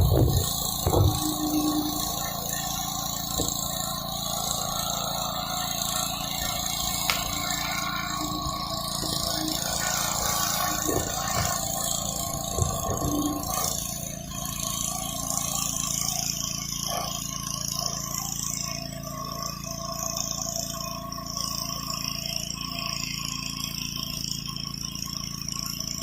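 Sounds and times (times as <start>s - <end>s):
water spray hissing on concrete: 0.0s - 17.3s
pressure washer engine running: 0.0s - 26.0s.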